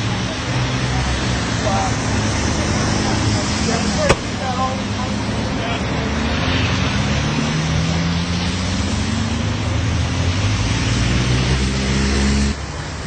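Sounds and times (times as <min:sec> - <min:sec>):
road noise: 0:00.0 - 0:13.0
vehicle engine accelerating: 0:00.0 - 0:13.0.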